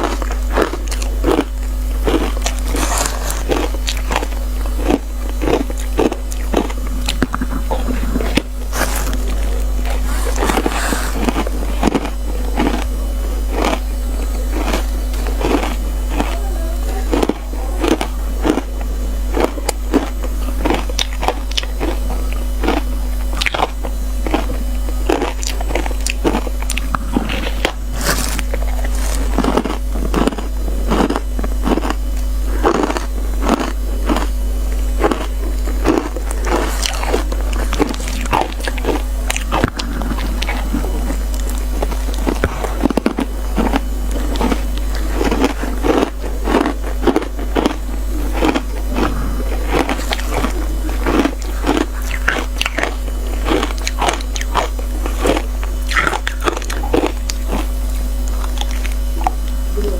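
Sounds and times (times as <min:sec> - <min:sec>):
chewing: 0:00.0 - 0:59.9
ice being crunched: 0:02.6 - 0:04.0.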